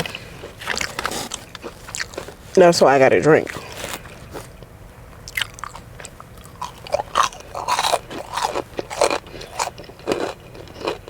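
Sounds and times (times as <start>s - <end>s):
person chewing crispy food: 0.0s - 2.6s, 3.4s - 11.0s.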